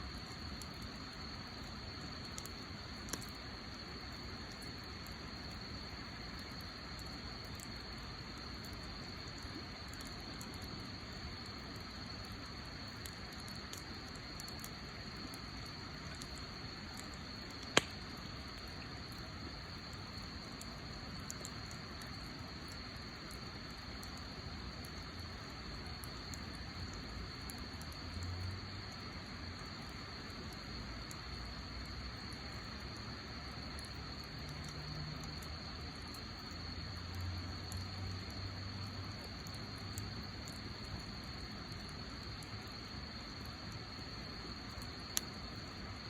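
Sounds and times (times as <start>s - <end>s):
wood fire crackling: 0.0s - 46.0s
sharp pop of fire: 17.6s - 18.0s.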